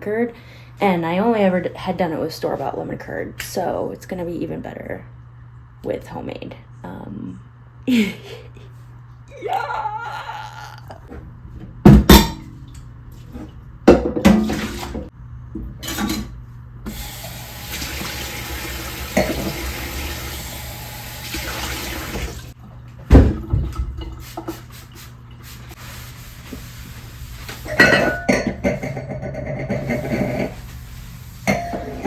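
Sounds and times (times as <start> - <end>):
kitchen tap running: 16.9 - 32.0.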